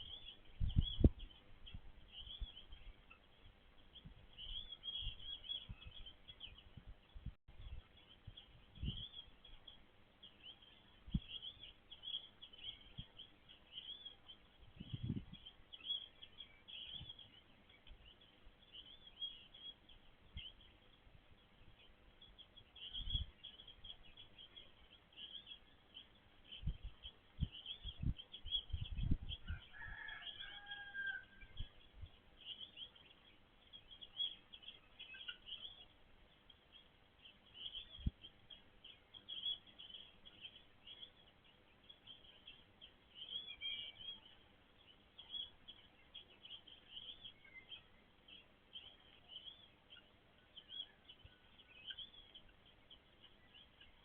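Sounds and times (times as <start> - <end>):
birds chirping: 0.0 - 54.0
dull low thumps: 0.5 - 2.6.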